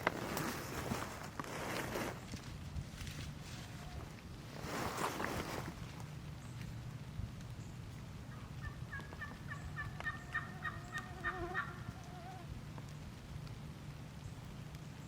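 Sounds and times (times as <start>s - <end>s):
turkey yelping: 8.3s - 12.2s.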